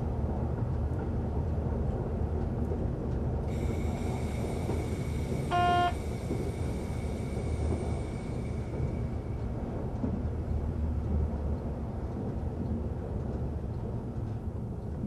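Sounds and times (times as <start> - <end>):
train rumbling on track: 0.0 - 15.0
faint high whine: 3.5 - 8.8
short single-pitched tone: 5.5 - 6.0.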